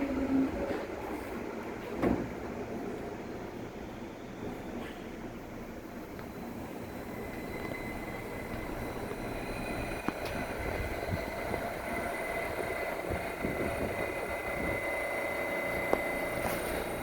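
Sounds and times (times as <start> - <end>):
subway train rumbling: 0.0 - 17.0
high-pitched electrical whines: 6.3 - 17.0.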